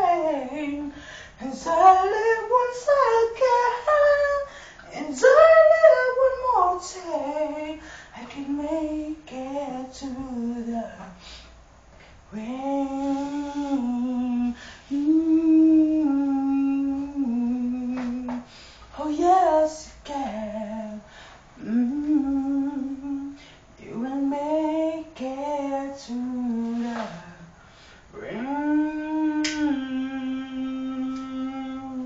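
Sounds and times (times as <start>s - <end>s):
woman singing unaccompanied: 0.0s - 11.2s, 12.3s - 18.4s, 19.0s - 21.0s, 21.6s - 27.5s, 28.2s - 32.0s
short breaths: 0.9s - 1.4s, 18.4s - 19.0s, 26.9s - 28.2s.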